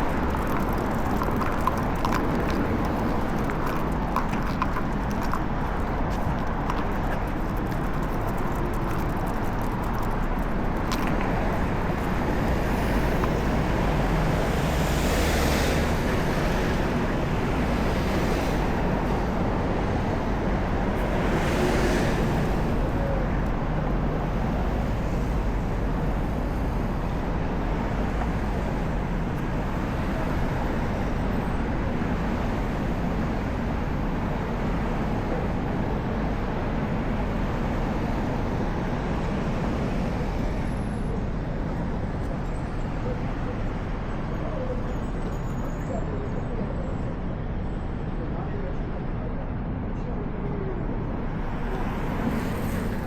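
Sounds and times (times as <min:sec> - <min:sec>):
city street traffic: 0:00.0 - 0:53.0.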